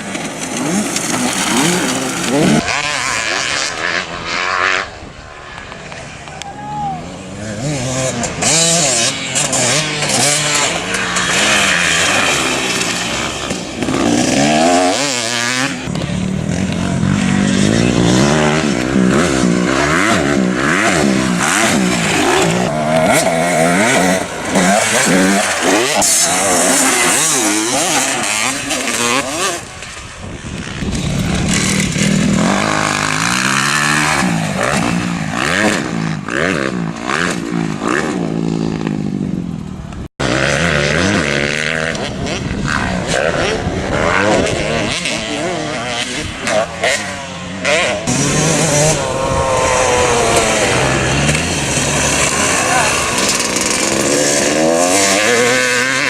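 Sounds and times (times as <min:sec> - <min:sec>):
motocross bike engines revving: 0:00.0 - 0:56.0.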